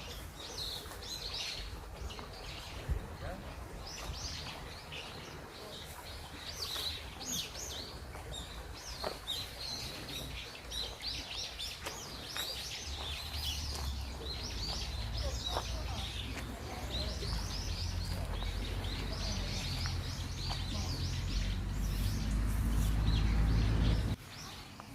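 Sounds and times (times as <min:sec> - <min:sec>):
small birds chirping: 0:00.0 - 0:24.9
low rumble: 0:16.6 - 0:24.2.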